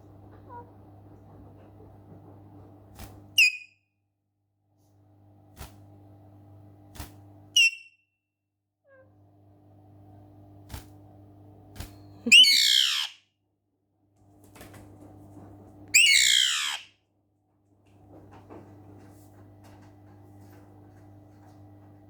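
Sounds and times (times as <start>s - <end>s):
parrot screeching: 7.6s - 7.8s, 12.3s - 13.2s, 16.0s - 16.9s.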